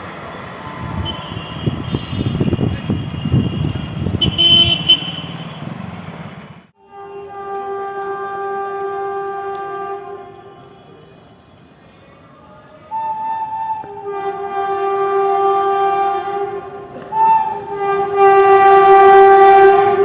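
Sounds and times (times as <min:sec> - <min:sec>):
train rumbling past: 0:00.0 - 0:06.7, 0:12.9 - 0:20.0
train horn long note: 0:00.7 - 0:02.6, 0:03.5 - 0:05.3, 0:06.8 - 0:10.8, 0:13.0 - 0:20.0.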